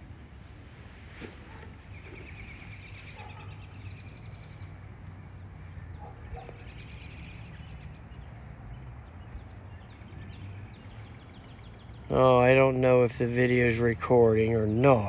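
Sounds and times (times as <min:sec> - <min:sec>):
low steady rumble: 0:00.0 - 0:06.7
songbird trilling: 0:01.8 - 0:08.4.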